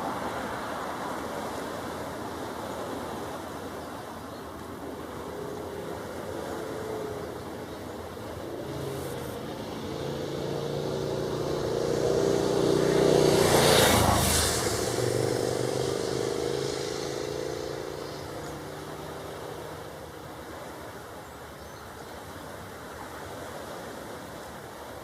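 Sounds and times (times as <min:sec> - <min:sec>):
vehicle passing by: 0:04.6 - 0:20.8.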